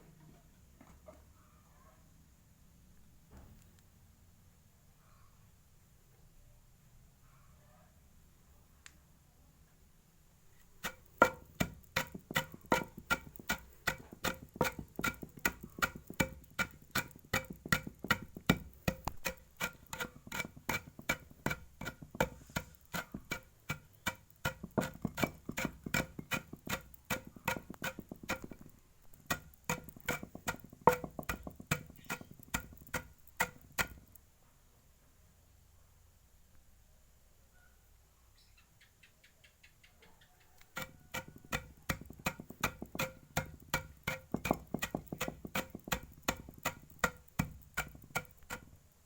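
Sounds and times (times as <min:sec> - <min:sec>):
pigeons pecking on hard dish: 0:10.8 - 0:34.2, 0:40.7 - 0:48.7.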